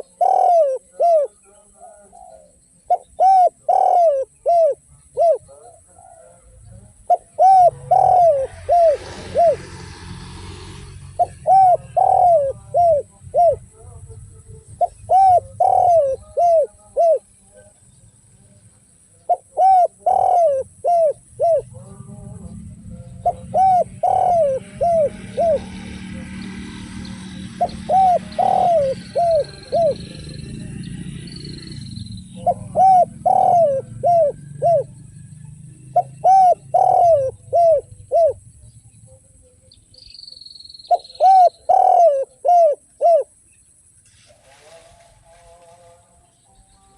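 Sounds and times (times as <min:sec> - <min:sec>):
dove cooing: 0:00.0 - 0:17.8, 0:19.1 - 0:39.6, 0:40.9 - 0:43.4
faint hiss: 0:44.0 - 0:46.9.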